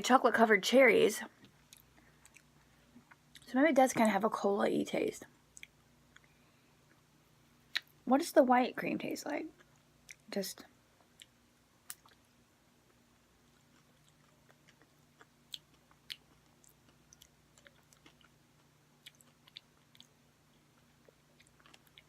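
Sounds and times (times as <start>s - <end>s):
cookie chewing crunches: 1.4s - 3.5s, 11.0s - 22.0s.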